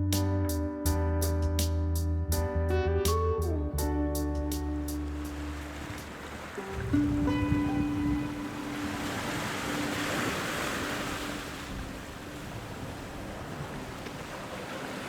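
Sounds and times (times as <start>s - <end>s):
small waves washing onto beach: 5.0s - 15.0s.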